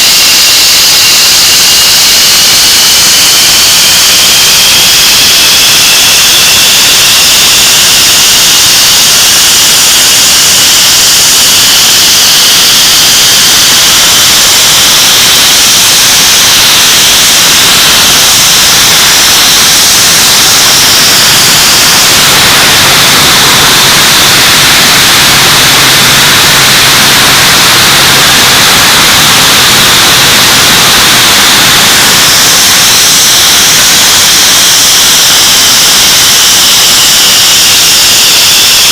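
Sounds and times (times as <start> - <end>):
jet engine roar with whine: 0.0 - 38.9.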